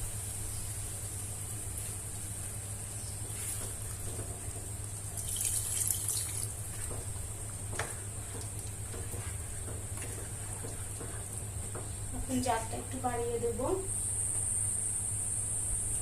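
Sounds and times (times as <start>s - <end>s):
cooking hiss: 0.0s - 16.0s
water pouring into pot: 5.0s - 6.6s.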